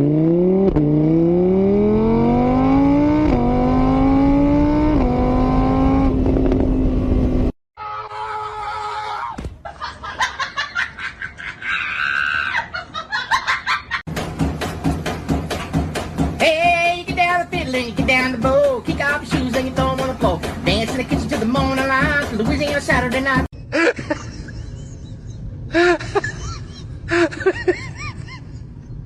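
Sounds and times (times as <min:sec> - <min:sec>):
car engine accelerating: 0:00.0 - 0:07.6.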